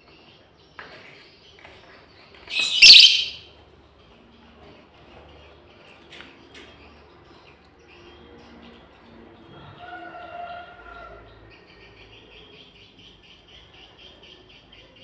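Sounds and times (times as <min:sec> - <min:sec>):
lovebird screeching: 0:02.5 - 0:03.4
short bird chirps: 0:02.5 - 0:03.4.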